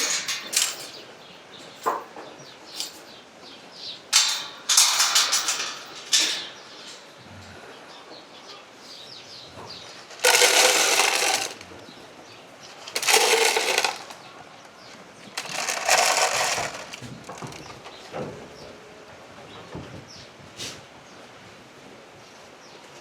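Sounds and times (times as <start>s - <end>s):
dry feed poured into bowls: 10.1s - 11.6s, 12.8s - 14.2s, 15.4s - 17.6s.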